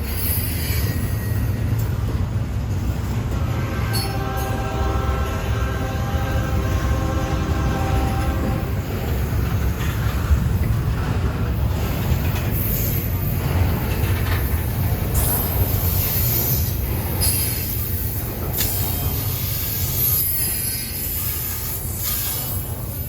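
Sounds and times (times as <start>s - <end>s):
train wheel squeal: 0.0s - 2.2s, 3.3s - 10.0s, 11.6s - 23.0s
freight train rumbling past: 0.0s - 23.0s.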